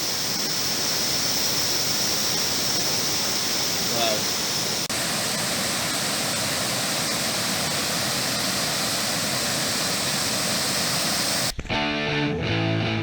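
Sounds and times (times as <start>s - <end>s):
waterfall roaring: 0.0s - 11.5s
guitar music: 11.5s - 13.0s.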